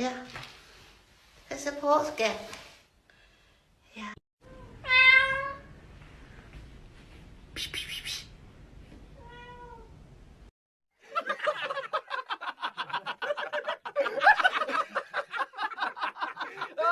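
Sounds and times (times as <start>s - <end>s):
cat meowing: 4.4s - 5.7s, 9.2s - 9.9s.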